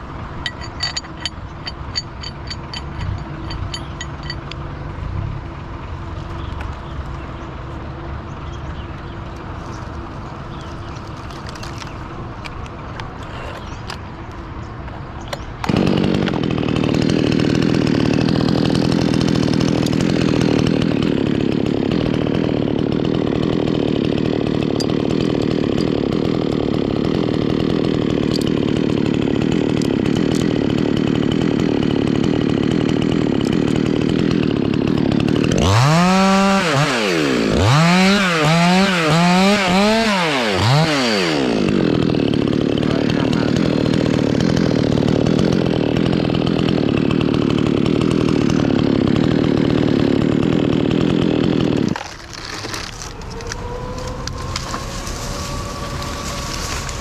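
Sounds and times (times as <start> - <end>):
chainsaw running: 0.0 - 57.0.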